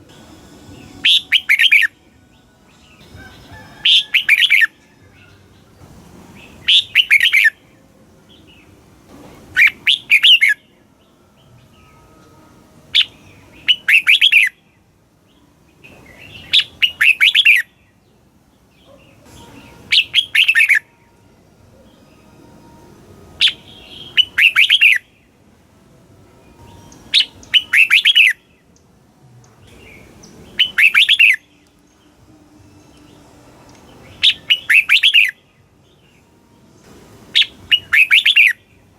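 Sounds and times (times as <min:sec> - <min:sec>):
faint steady hiss: 0:00.0 - 0:38.9
bird warbling song: 0:00.7 - 0:05.8, 0:06.4 - 0:08.7, 0:09.5 - 0:12.1, 0:12.9 - 0:20.9, 0:23.4 - 0:25.4, 0:26.5 - 0:28.9, 0:29.5 - 0:32.2, 0:32.8 - 0:36.2, 0:37.3 - 0:38.9.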